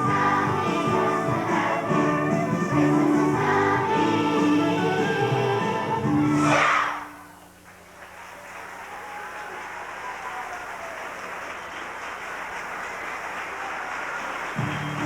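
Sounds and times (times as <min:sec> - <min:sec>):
music: 0:00.0 - 0:06.7, 0:14.6 - 0:15.0
audience applauding: 0:07.6 - 0:15.0.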